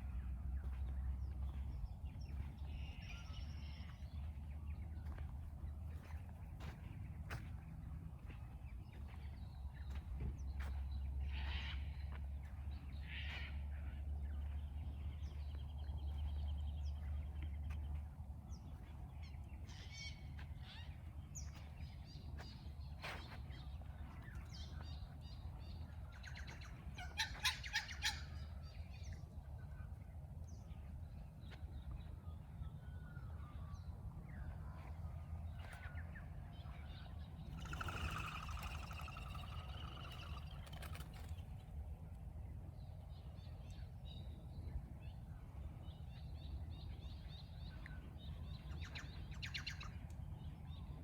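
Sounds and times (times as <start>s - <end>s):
low steady rumble: 0.0s - 51.0s
birds chirping and calling: 37.3s - 41.6s.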